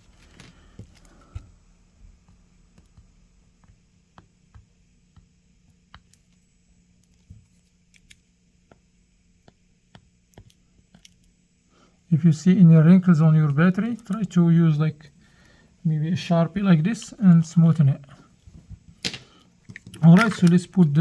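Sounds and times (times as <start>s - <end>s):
faint steady hum: 0.0s - 21.0s
small parts and tools clicking: 0.2s - 1.4s, 2.2s - 8.8s, 9.4s - 11.4s, 18.8s - 21.0s.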